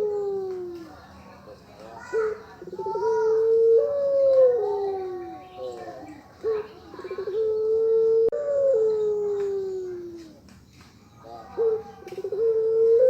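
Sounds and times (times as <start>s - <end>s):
dove cooing: 0.0s - 1.1s, 2.0s - 10.5s, 11.2s - 13.0s.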